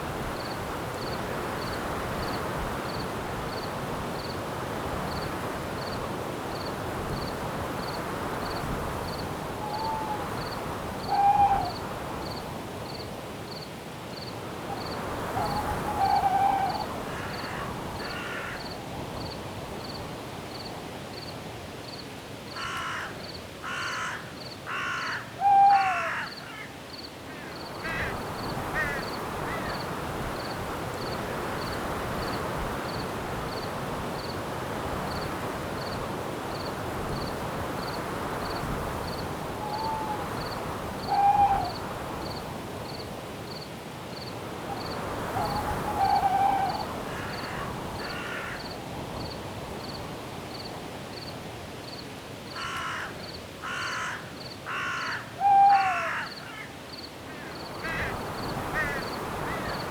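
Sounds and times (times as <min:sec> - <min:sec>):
cricket chirping: 0:05.1 - 0:20.0, 0:26.3 - 0:34.4, 0:35.1 - 0:55.2
bird cawing: 0:15.4 - 0:18.8, 0:22.6 - 0:29.8, 0:41.0 - 0:41.8, 0:45.3 - 0:48.7, 0:52.6 - 0:59.9.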